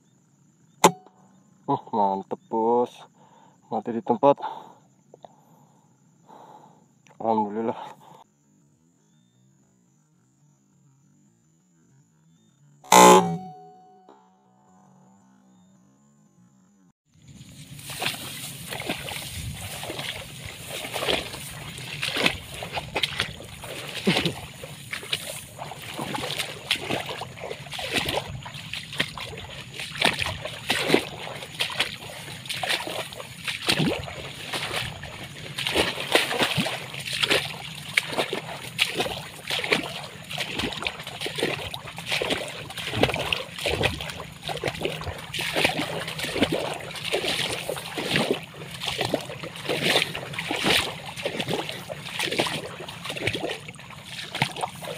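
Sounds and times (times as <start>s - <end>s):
water splashing and sloshing: 17.2s - 54.9s.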